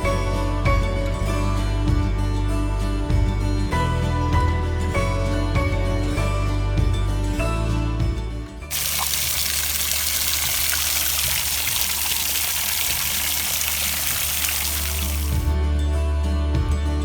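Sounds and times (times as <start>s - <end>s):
running water rushing: 8.7s - 15.5s.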